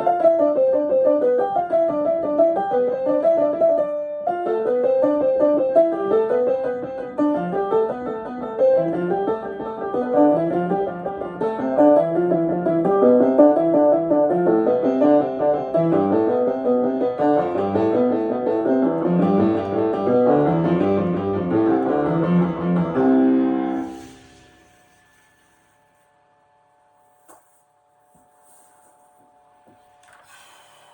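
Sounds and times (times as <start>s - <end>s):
piano finger exercise: 4.5s - 24.7s
held piano chord: 5.4s - 24.8s.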